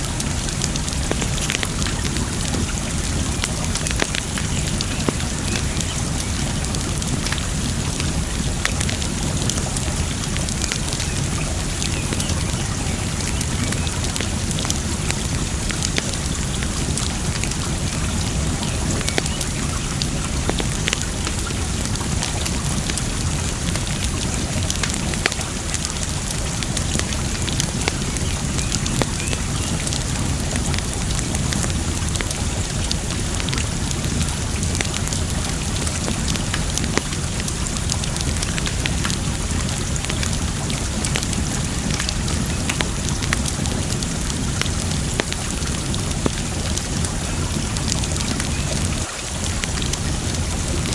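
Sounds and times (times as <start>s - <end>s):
campfire crackling and popping: 0.0s - 50.9s
water noise: 0.0s - 50.9s.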